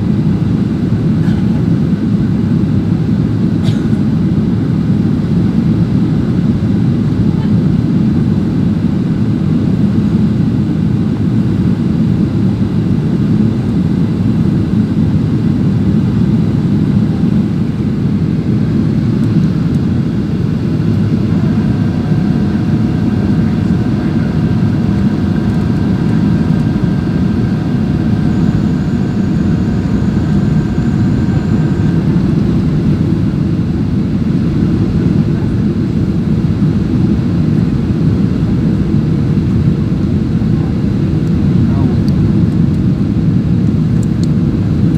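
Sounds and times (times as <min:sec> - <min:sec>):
airliner engines and airflow roar: 0:00.0 - 0:44.9
faint steady tones: 0:19.0 - 0:33.8.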